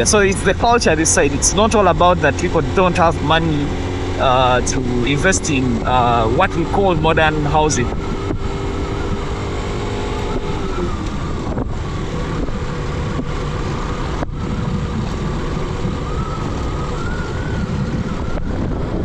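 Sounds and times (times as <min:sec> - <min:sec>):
motorcycle engine running: 0:00.0 - 0:19.0
wind on microphone: 0:07.3 - 0:19.0.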